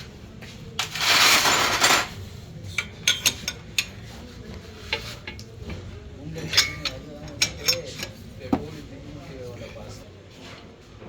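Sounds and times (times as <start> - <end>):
metal tools clinking: 6.3 - 8.2.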